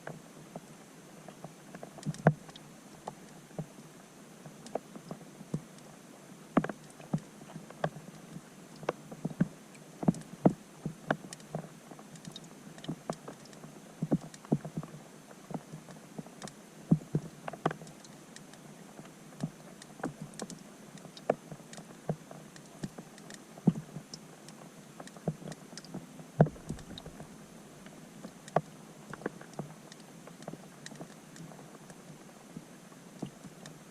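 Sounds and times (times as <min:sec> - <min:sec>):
raindrops plinking underwater: 0:06.6 - 0:32.2.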